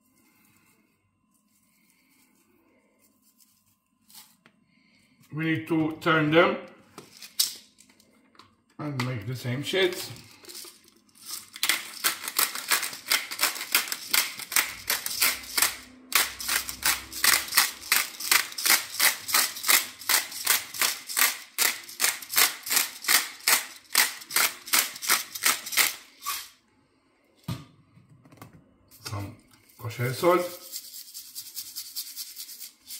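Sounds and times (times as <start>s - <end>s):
spice shaker strokes: 1.3s - 4.4s, 10.0s - 26.6s, 29.6s - 32.9s.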